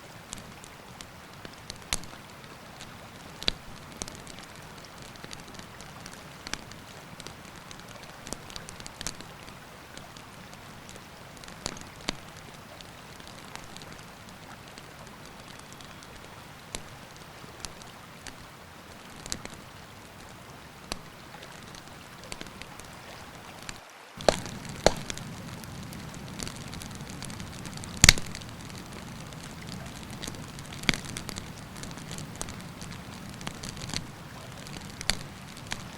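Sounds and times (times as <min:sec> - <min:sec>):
wood campfire crackling: 0:00.0 - 0:35.9
fire cracks: 0:00.2 - 0:35.9.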